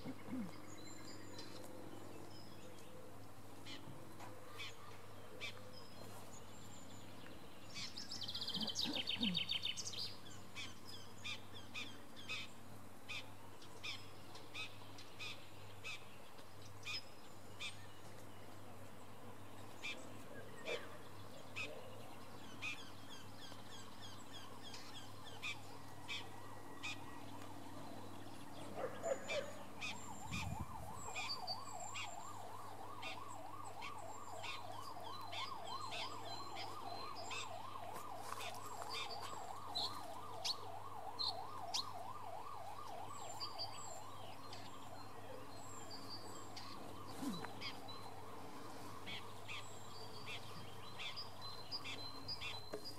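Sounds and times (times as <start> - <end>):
songbirds chirping: 0.0 - 52.9
distant siren rising and falling: 17.6 - 52.9.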